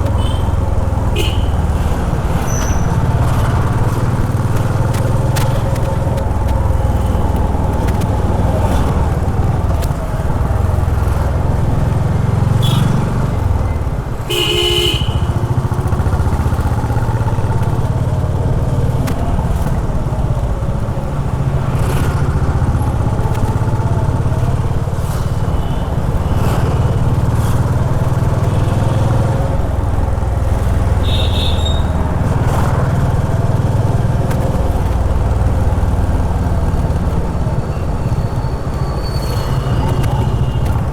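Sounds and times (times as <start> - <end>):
vehicle horns honking: 0.0 - 3.6, 12.4 - 13.3, 14.2 - 15.9, 30.9 - 32.0, 37.7 - 40.9
motorcycle engine running: 0.0 - 40.9.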